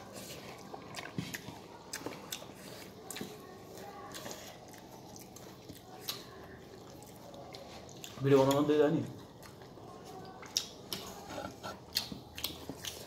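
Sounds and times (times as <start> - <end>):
person chewing and biting: 0.0 - 13.0.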